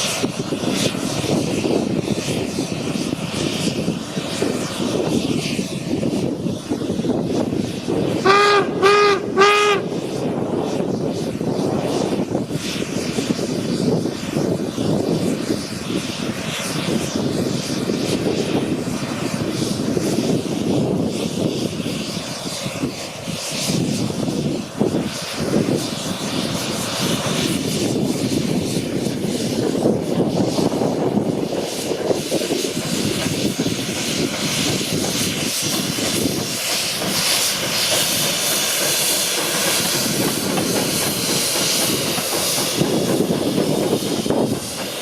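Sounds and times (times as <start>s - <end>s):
steady rushing noise: 0.0s - 45.0s
locomotive whistle toots: 8.2s - 10.1s.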